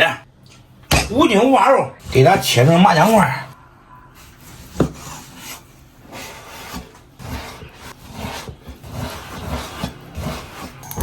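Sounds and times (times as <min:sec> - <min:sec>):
knife sawing through meat: 0:06.2 - 0:10.8.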